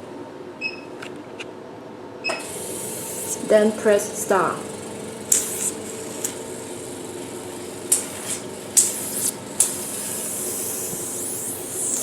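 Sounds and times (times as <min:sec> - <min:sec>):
machine humming: 0:02.4 - 0:12.0
handpiece hissing: 0:05.3 - 0:05.8, 0:07.9 - 0:12.0.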